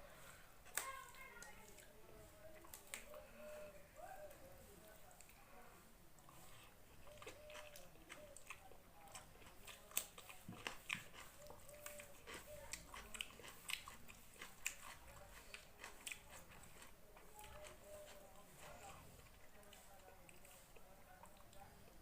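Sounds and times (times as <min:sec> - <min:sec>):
person chewing food: 0:06.1 - 0:21.7.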